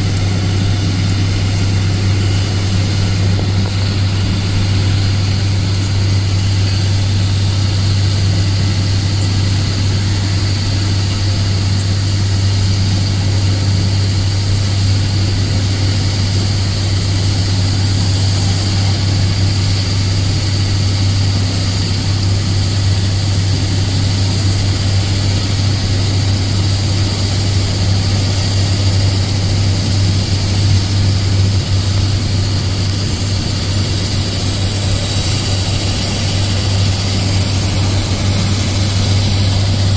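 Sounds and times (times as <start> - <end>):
heavy engine machinery drone: 0.0 - 39.9.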